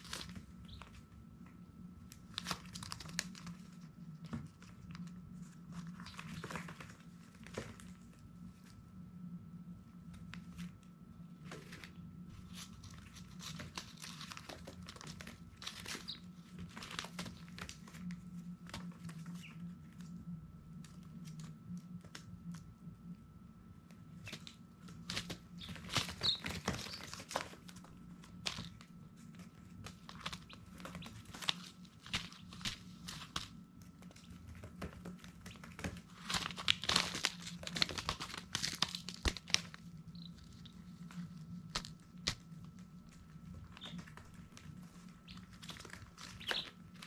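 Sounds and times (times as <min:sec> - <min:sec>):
chicks scratching on paper: 0:00.0 - 0:08.8, 0:10.1 - 0:23.0, 0:23.9 - 0:47.0
chick peeps: 0:00.7 - 0:00.9, 0:15.9 - 0:16.3, 0:25.6 - 0:27.3, 0:43.7 - 0:44.2, 0:45.2 - 0:46.8.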